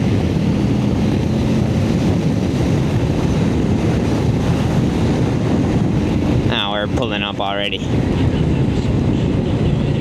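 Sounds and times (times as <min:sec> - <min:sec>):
motorcycle engine droning: 0:00.0 - 0:10.0
wind noise on microphone: 0:00.0 - 0:10.0.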